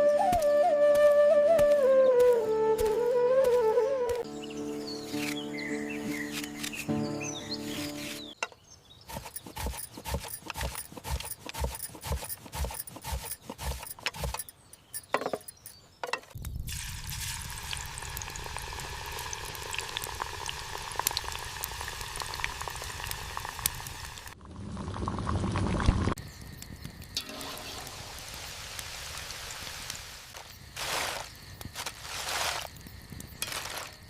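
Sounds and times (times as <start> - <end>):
frying sizzle with crackles: 16.5 - 31.2.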